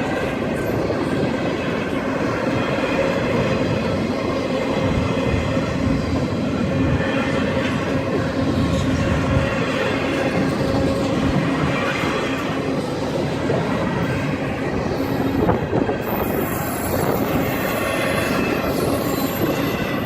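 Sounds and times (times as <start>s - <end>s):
train wheels clattering on rails: 0.0s - 20.0s.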